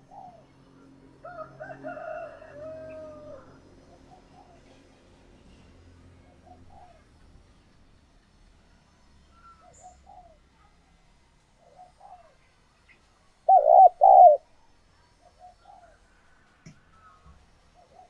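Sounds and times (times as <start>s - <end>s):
dove cooing: 0.0s - 0.5s, 2.6s - 4.8s, 13.5s - 14.4s.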